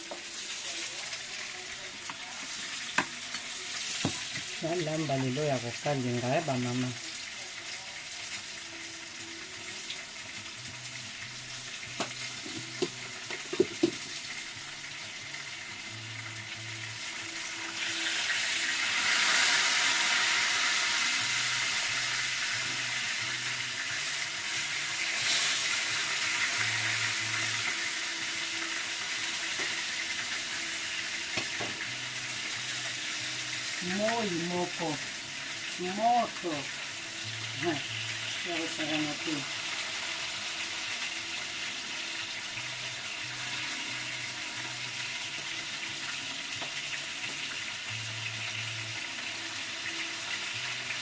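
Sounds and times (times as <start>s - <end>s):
food sizzling in hot oil: 0.0s - 51.0s
utensil knocks: 12.0s - 14.1s.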